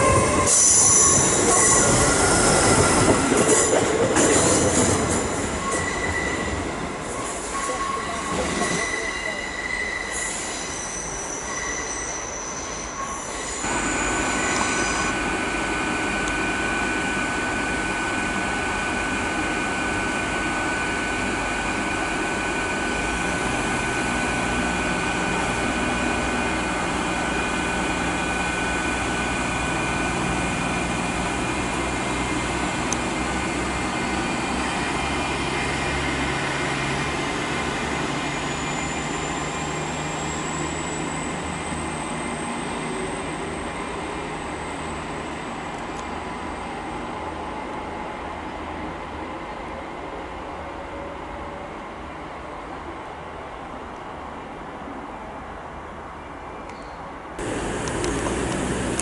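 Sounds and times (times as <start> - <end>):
train passing at speed: 0.0 - 59.0
traction motor whine: 57.4 - 59.0.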